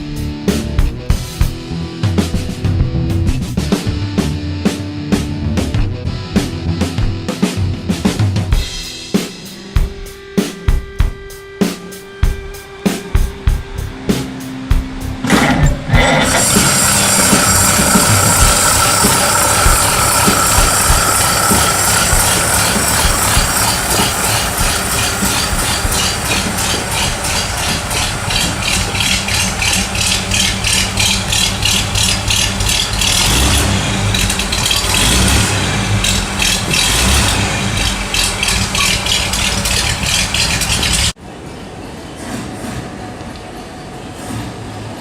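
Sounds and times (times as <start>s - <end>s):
car engine running with rattle: 15.1s - 41.2s.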